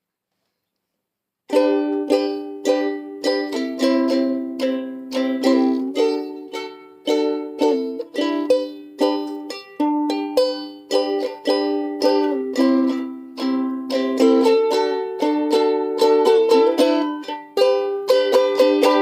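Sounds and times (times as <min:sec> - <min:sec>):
ukulele strumming chords: 0:01.5 - 0:19.0.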